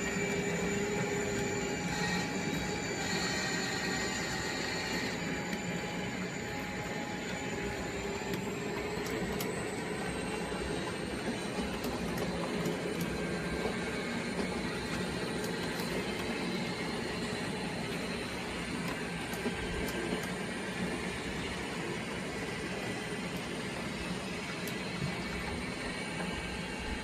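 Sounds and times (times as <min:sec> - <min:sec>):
faint high whine: 0:00.0 - 0:27.0
model train running: 0:00.0 - 0:27.0.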